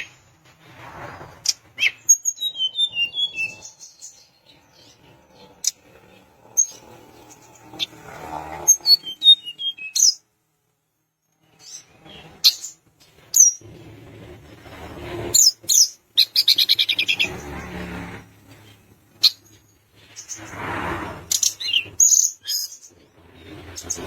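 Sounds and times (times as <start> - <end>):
bird chirps and whistles: 1.8 - 4.2, 8.8 - 10.2
bird rattling call: 20.2 - 24.0.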